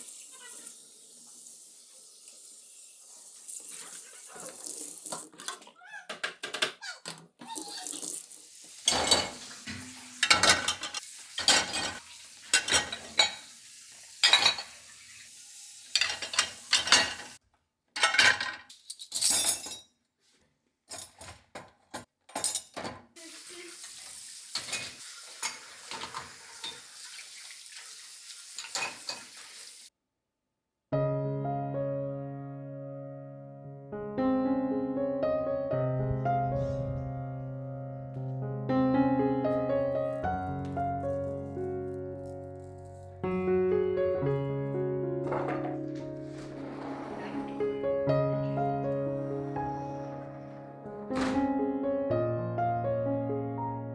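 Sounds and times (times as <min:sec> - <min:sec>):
water running in sink: 0:00.0 - 0:05.7, 0:06.8 - 0:17.4, 0:23.2 - 0:29.9, 0:39.6 - 0:47.8, 0:48.4 - 0:50.6
dishes and utensils clinking: 0:07.4 - 0:15.2, 0:15.9 - 0:17.4, 0:18.0 - 0:19.9, 0:20.9 - 0:23.1, 0:24.5 - 0:27.0, 0:28.5 - 0:29.5, 0:45.2 - 0:47.8.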